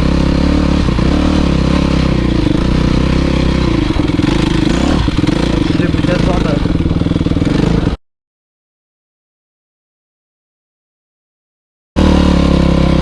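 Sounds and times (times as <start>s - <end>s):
motocross bike engine running: 0.0s - 8.0s, 12.0s - 13.0s.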